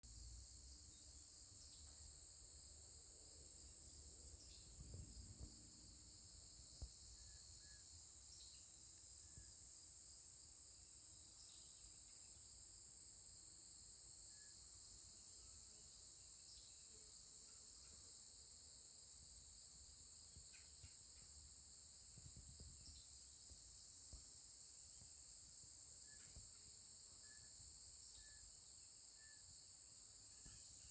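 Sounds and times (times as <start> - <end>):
insects trilling: 0.1 - 10.4, 19.0 - 30.9.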